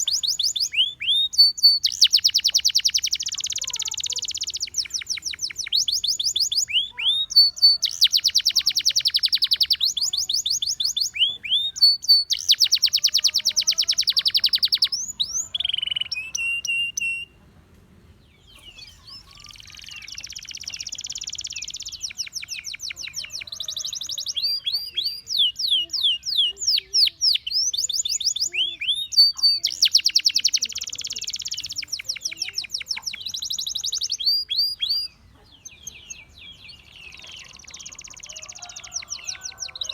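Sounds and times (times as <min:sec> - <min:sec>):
canary singing trills: 0:00.0 - 0:17.4, 0:18.4 - 0:39.9.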